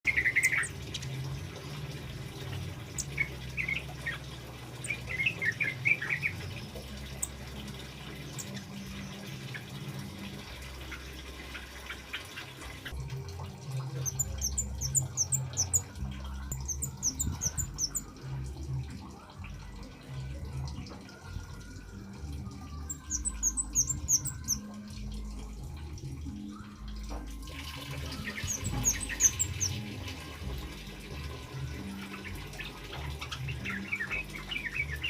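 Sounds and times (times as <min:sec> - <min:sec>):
bird chirping: 0:00.0 - 0:01.1, 0:08.1 - 0:09.3, 0:14.0 - 0:18.2, 0:22.7 - 0:24.7, 0:28.2 - 0:29.9
water trickling: 0:00.0 - 0:35.0.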